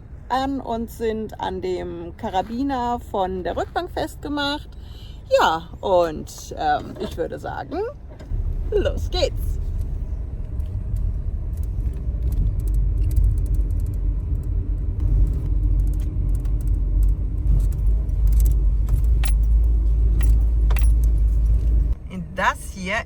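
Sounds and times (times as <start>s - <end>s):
engine and road rumble: 0.0s - 23.0s
light rattling and jingling clicks: 9.7s - 22.0s.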